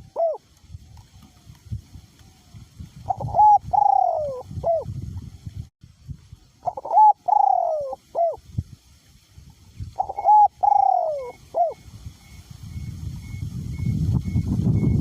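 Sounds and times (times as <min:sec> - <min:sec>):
dove cooing: 0:00.0 - 0:00.5, 0:03.1 - 0:04.9, 0:06.6 - 0:08.4, 0:10.0 - 0:11.8
wind rumble on microphone: 0:00.0 - 0:15.0.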